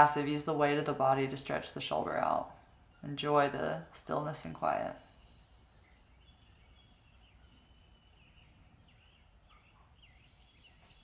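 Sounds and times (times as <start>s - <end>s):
birds chirping and whistling: 5.1s - 11.0s.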